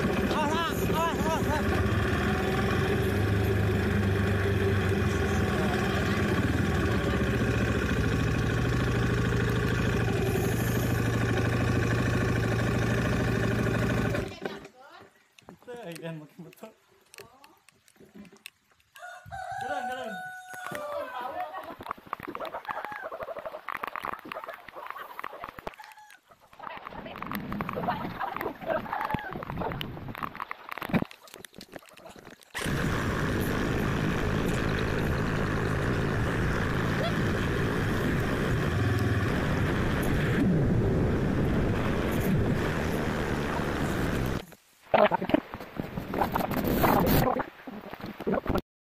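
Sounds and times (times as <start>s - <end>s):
motorcycle engine idling: 0.0s - 14.6s, 32.6s - 40.4s
wind noise: 27.1s - 31.1s, 32.6s - 44.4s, 45.3s - 48.6s.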